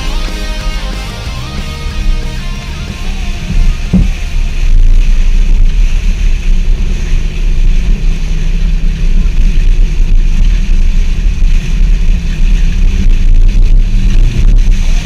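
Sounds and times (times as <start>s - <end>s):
off-road vehicle engine rumble: 0.0s - 15.0s
wind buffeting microphone: 3.4s - 6.1s.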